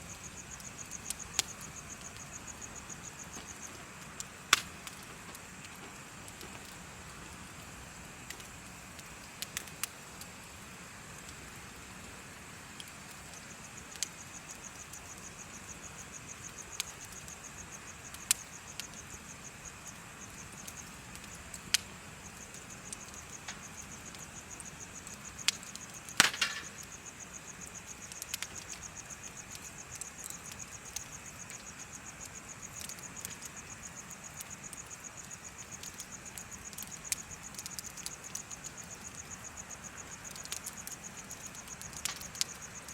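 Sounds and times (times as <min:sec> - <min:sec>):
insect chirping in high trill: 0:00.0 - 0:04.4, 0:13.2 - 0:42.9
bonfire crackling and popping: 0:00.0 - 0:42.9.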